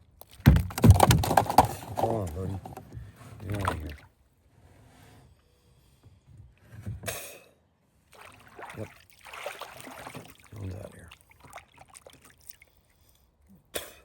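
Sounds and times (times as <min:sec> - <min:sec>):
water splashing and trickling: 0:00.1 - 0:04.0, 0:08.0 - 0:13.1
knocks and clicks in boat: 0:00.2 - 0:03.9
dull thump: 0:00.4 - 0:02.8.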